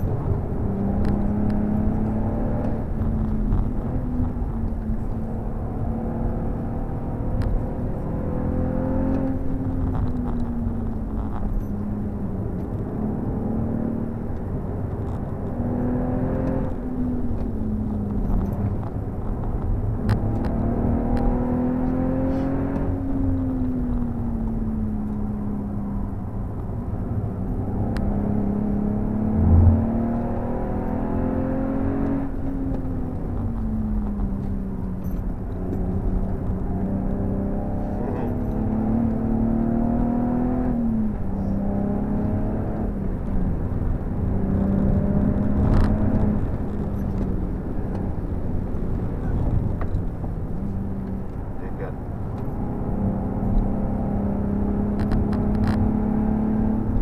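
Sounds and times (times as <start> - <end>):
car engine at speed: 0.0 - 57.0
road and tyre noise: 0.0 - 57.0
low thump: 29.3 - 30.4.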